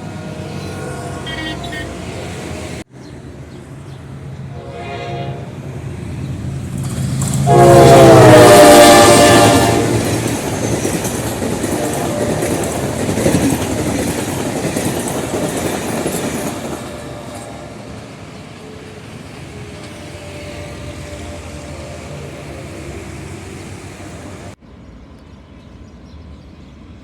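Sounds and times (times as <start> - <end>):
locomotive engine humming: 0.0 - 27.0
train horn blasts: 0.5 - 2.6, 4.5 - 5.7, 7.4 - 10.2, 11.6 - 13.4, 16.8 - 18.2, 19.8 - 23.5
train wheels clattering on rails: 6.3 - 8.1, 9.0 - 18.8.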